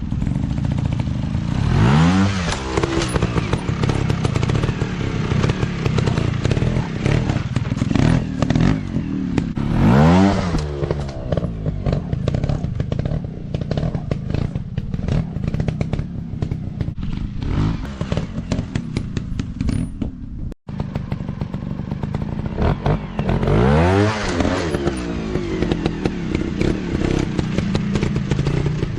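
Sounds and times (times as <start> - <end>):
dirt bike engines revving: 0.0 - 20.0, 20.7 - 28.9
clattering: 2.5 - 4.8.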